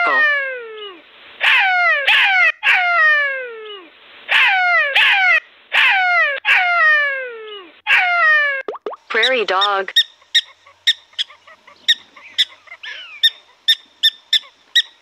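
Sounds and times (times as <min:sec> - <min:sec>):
jackal yelping: 0:01.4 - 0:03.3, 0:04.3 - 0:07.1, 0:07.9 - 0:08.5, 0:09.1 - 0:15.0.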